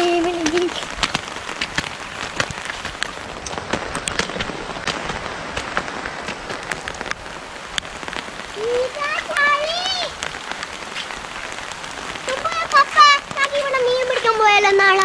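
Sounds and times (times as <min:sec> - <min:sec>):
raindrops tapping: 0:00.0 - 0:15.0
steady rainfall: 0:00.0 - 0:15.0
child's voice holding a note: 0:08.6 - 0:10.2, 0:12.3 - 0:15.0.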